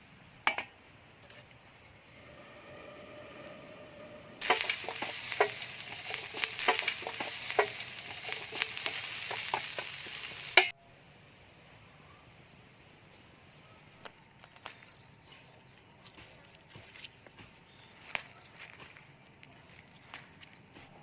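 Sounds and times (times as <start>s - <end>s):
utensil scraping a pan: 4.4s - 10.7s
mushrooms sizzling in a pan: 4.4s - 10.8s.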